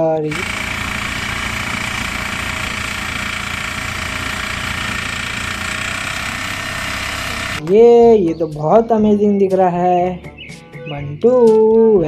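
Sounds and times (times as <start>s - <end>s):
tractor engine idling: 0.2s - 7.7s.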